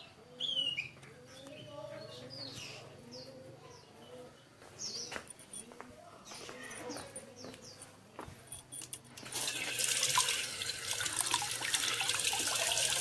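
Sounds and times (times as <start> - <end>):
birds chirping: 0.0 - 8.8.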